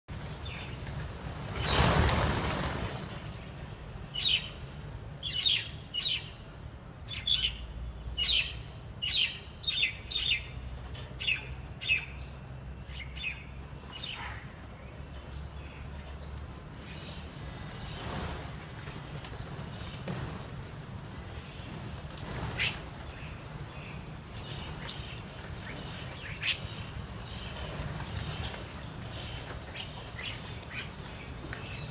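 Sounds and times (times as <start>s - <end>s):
myna birds calling: 7.1s - 20.2s, 21.1s - 31.9s.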